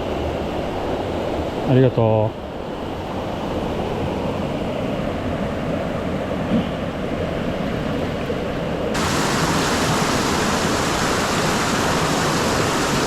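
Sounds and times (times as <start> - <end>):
stream rushing over rocks: 9.0 - 13.0.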